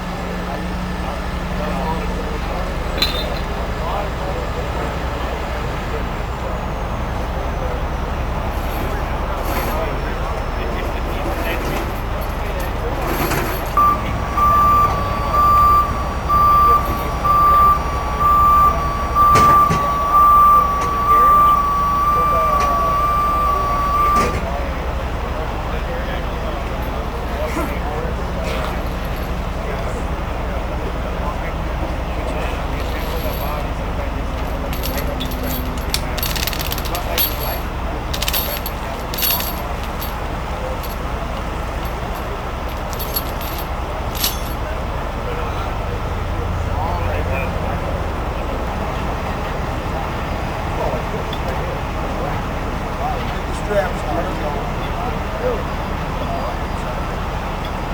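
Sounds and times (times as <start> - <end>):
truck reversing alarm beeping: 0.0 - 53.2
truck engine running: 0.0 - 57.9
metallic clinks of rigging: 3.0 - 3.6, 34.3 - 44.6.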